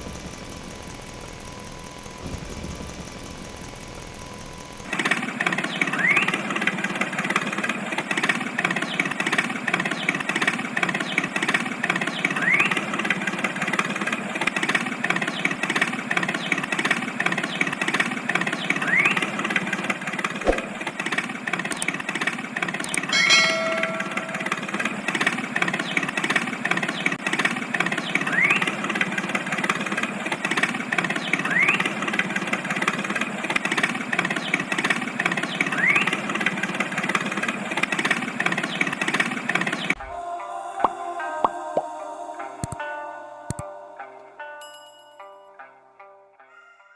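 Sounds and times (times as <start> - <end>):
motor running: 0.0 - 40.0
bell-like ding: 23.1 - 24.7, 44.6 - 45.7.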